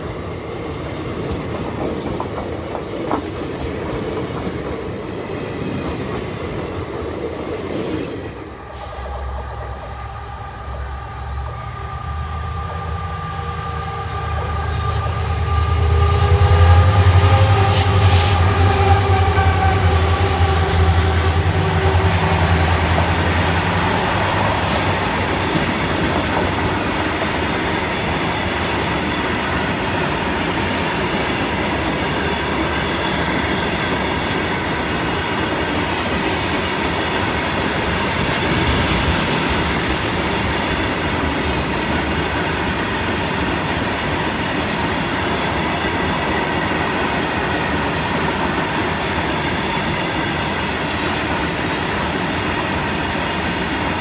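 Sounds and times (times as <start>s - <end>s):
train wheels clattering on rail: 0.0s - 54.0s
diesel locomotives droning: 7.8s - 54.0s
high-pitched wheel squeal: 8.4s - 29.0s.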